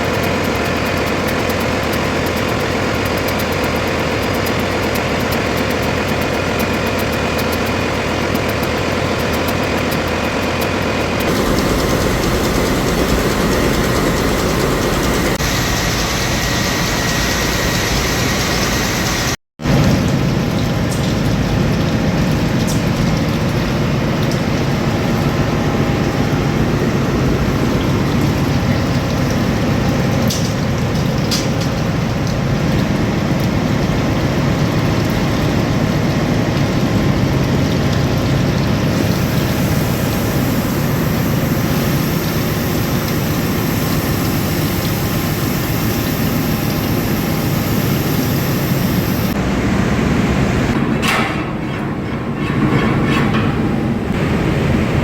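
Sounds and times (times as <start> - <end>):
engine room machinery droning: 0.0 - 55.0.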